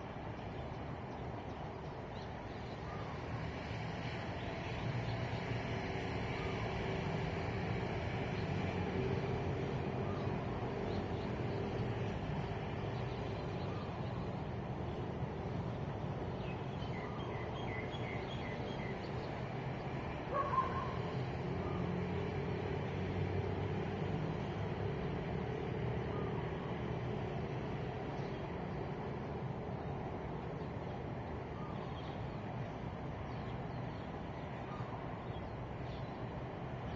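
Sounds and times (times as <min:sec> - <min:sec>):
traffic hum: 0:00.0 - 0:36.9.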